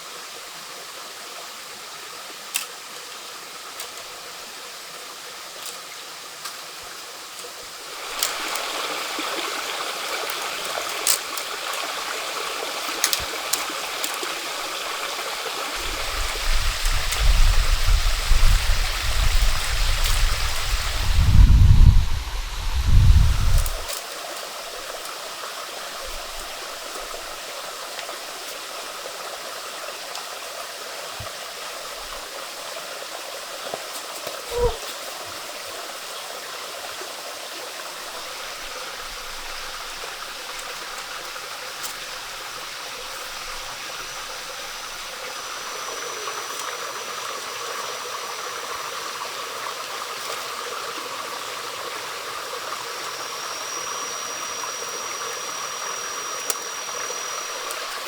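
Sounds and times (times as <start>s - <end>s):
stream flowing: 0.0s - 58.0s
thin high steady tone: 34.5s - 34.8s, 50.3s - 58.0s.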